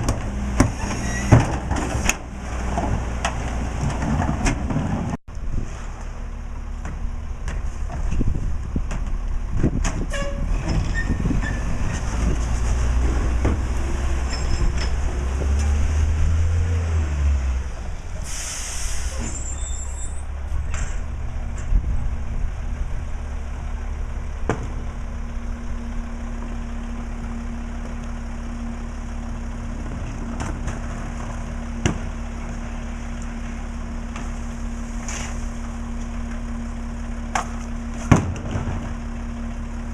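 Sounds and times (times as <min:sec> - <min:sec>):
garbage truck diesel engine: 0:00.0 - 0:39.9
air brake hiss: 0:18.2 - 0:20.2.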